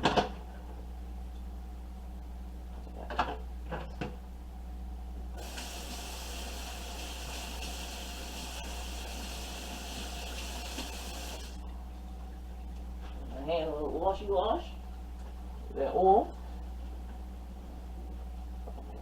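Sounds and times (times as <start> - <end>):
tap running into a sink: 5.4 - 11.5.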